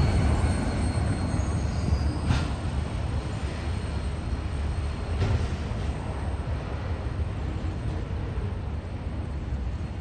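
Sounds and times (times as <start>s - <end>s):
freight train cars rolling past: 0.0s - 10.0s.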